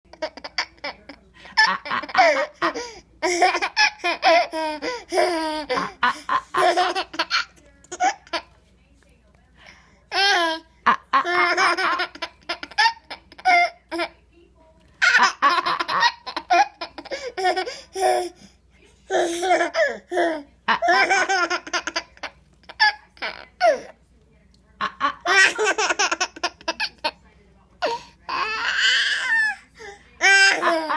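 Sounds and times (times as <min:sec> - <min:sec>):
baby laughing: 0:00.1 - 0:08.5, 0:24.8 - 0:27.1.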